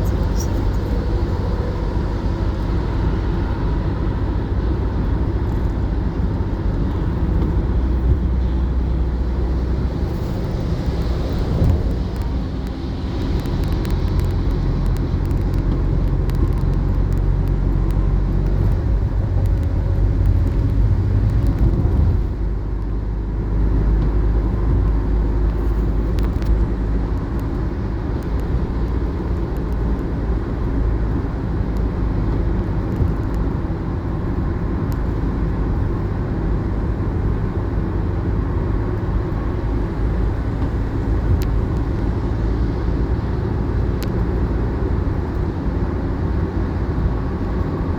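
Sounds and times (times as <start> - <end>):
engine running low rumble: 0.0 - 47.9.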